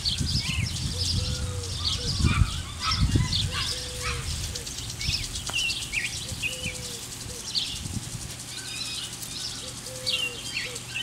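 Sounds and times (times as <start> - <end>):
birds chirping and twittering: 0.0 - 11.0.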